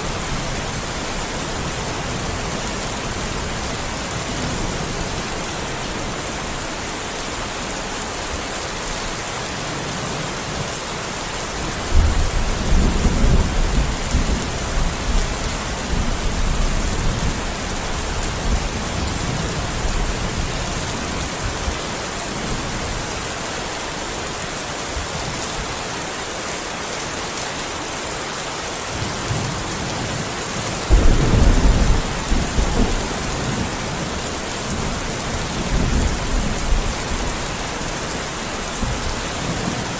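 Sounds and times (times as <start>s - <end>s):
heavy rain hissing: 0.0s - 39.9s
thunder rolling: 30.9s - 37.4s.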